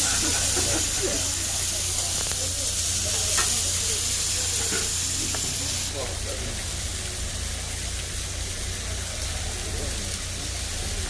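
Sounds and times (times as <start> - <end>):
pork sizzling on a griddle: 0.0 - 11.0.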